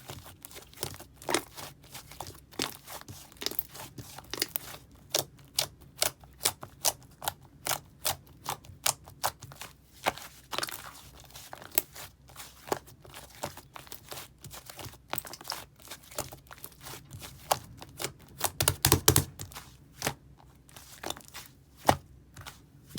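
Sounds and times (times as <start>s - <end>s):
clay slime clicking and popping: 18.0s - 20.2s.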